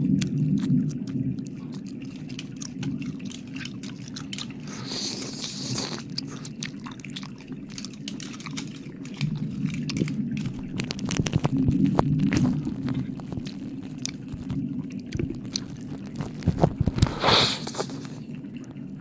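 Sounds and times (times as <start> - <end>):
wet mouth licking sounds: 0.0 - 18.3
breathy hiss: 4.6 - 6.4, 17.1 - 18.2
low rumble: 8.3 - 17.2.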